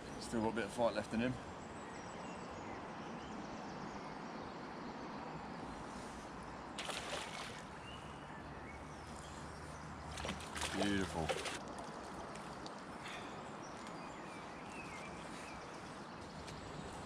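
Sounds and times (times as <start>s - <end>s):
fish splashing at surface: 6.8s - 7.6s, 10.2s - 11.6s
water sloshing: 6.8s - 7.7s, 10.1s - 12.0s.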